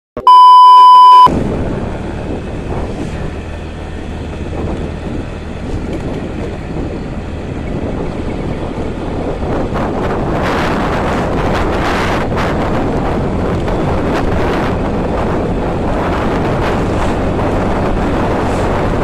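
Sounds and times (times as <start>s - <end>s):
loud electronic beep: 0.2s - 1.3s
wind noise on microphone: 1.1s - 19.0s
motorcycle engine hum: 1.3s - 19.0s.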